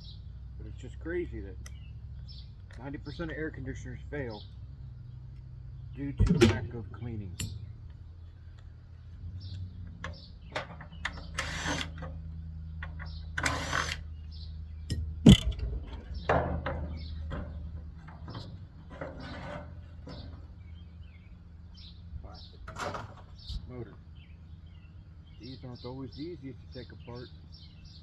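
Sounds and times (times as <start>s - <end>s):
low steady hum: 0.0s - 26.9s
tools and metal parts knocking: 6.2s - 6.8s, 9.5s - 14.0s, 14.9s - 20.6s
ratchet clicking: 11.0s - 12.2s, 12.9s - 14.1s.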